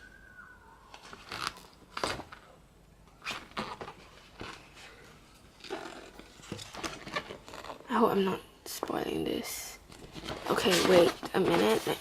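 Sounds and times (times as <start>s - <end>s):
pages rustling: 0.9s - 2.5s, 5.6s - 7.9s, 9.9s - 12.0s.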